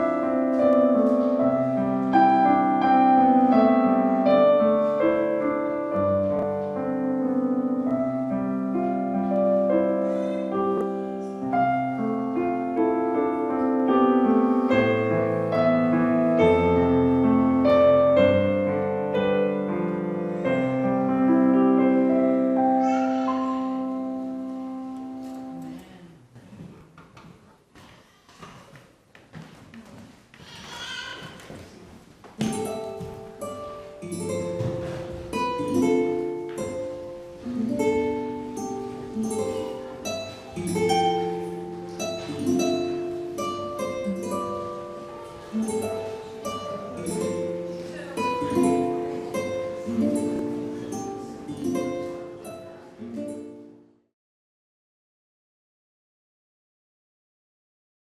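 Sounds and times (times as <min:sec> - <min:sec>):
slow piano chords: 0:00.0 - 0:26.2, 0:32.2 - 0:54.1.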